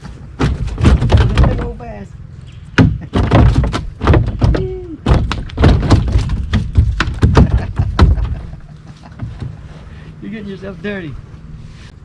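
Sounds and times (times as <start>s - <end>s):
fish thumping against kayak hull: 2.8s - 8.5s.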